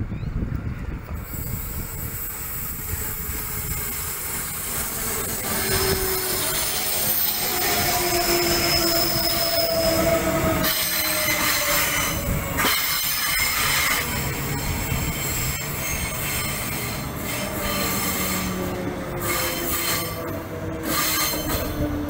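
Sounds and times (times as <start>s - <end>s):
train wheels rumbling on rails: 0.0s - 22.0s
train wheels squealing: 1.3s - 22.0s.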